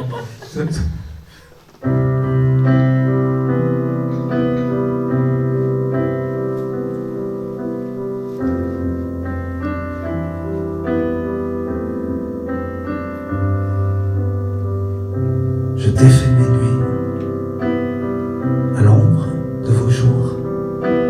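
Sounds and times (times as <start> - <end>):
solo piano chords: 1.8 - 21.0.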